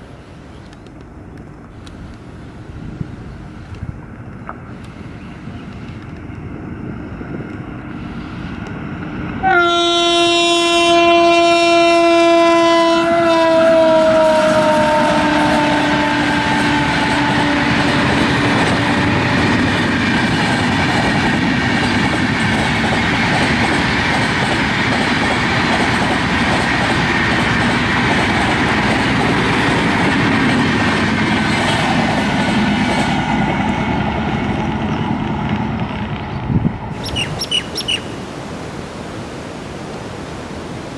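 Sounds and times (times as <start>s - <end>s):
train coaches running on rails: 0.0s - 38.6s
train horn blast: 9.4s - 20.0s.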